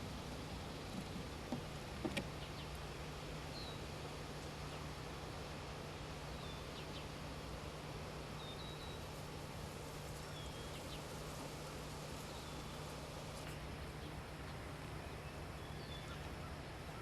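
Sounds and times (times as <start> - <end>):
small bird calling: 8.4 - 9.2, 10.1 - 17.0.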